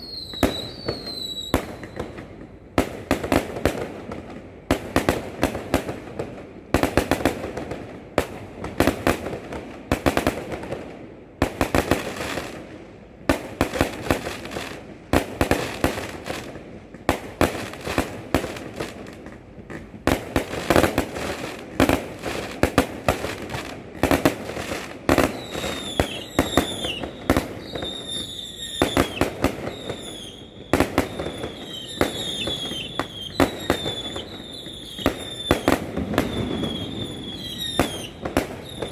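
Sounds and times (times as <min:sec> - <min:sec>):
falling firework whistles: 0:00.0 - 0:02.6, 0:25.1 - 0:38.9
fireworks bangs and crackling: 0:00.0 - 0:38.9.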